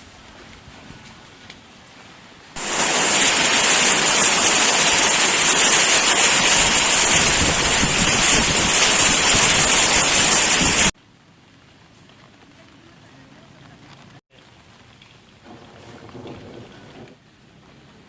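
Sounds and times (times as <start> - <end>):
wind: 0.0 - 18.0
heavy rain: 2.6 - 11.0, 15.4 - 17.4.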